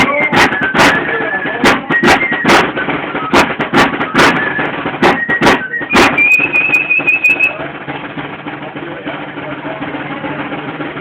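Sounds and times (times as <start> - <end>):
high flute melody: 0.0 - 7.7
drum beating: 0.0 - 11.0.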